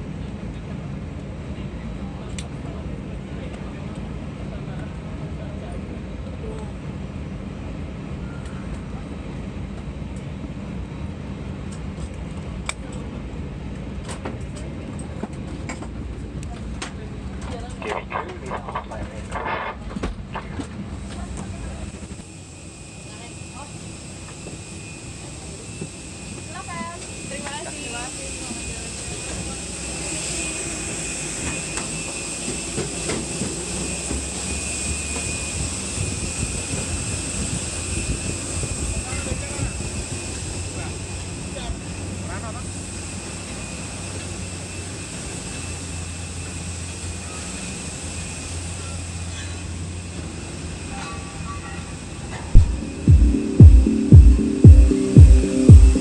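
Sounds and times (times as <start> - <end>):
high jet engine whine: 0.2 - 49.2, 52.4 - 56.0.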